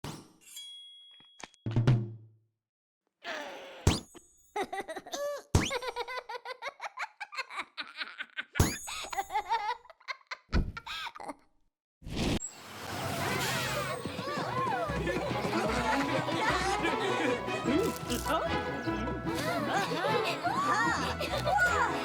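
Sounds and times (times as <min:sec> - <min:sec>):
cartoon character laughing: 0:04.6 - 0:11.5, 0:19.4 - 0:22.0.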